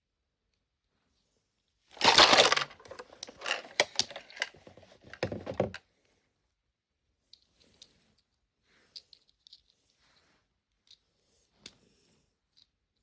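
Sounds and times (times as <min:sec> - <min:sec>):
plastic toy pieces clicking: 0:02.0 - 0:05.8.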